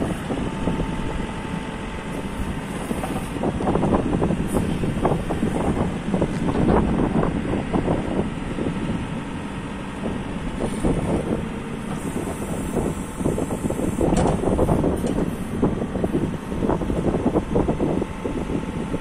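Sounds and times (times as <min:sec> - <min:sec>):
diesel engine running: 0:00.0 - 0:19.0
clanks and rattles: 0:14.0 - 0:15.3.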